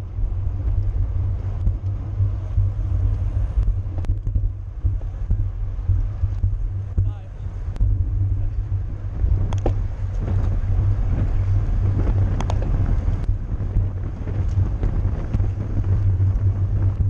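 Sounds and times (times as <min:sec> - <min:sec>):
wind buffeting microphone: 0:00.0 - 0:17.0
sharp clicks and ticks: 0:01.5 - 0:08.6, 0:09.4 - 0:10.6, 0:12.1 - 0:17.0.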